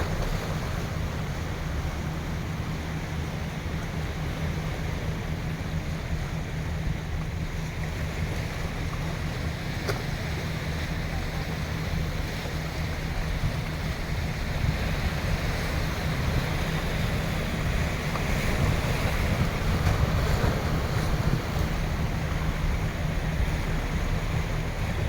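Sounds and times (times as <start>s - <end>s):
sea waves washing: 0.0s - 25.0s
wind buffeting microphone: 12.0s - 25.0s.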